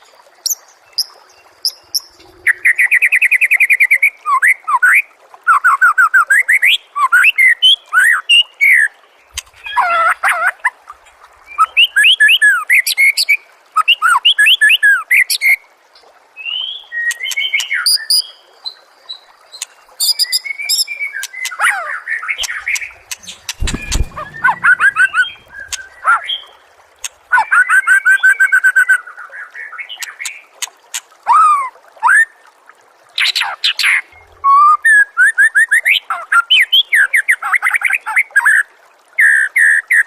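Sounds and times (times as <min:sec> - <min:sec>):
songbird singing trills and whistles: 0:22.4 - 0:26.0.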